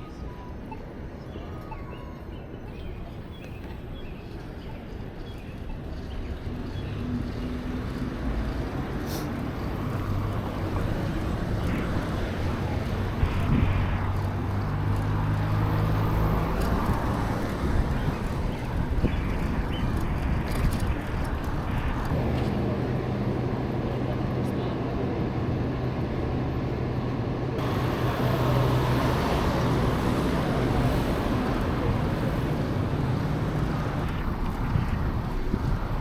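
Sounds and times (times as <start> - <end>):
traffic noise: 0.0 - 36.0
vehicle engine hum: 5.0 - 36.0
wind on microphone: 9.6 - 22.4, 28.8 - 36.0.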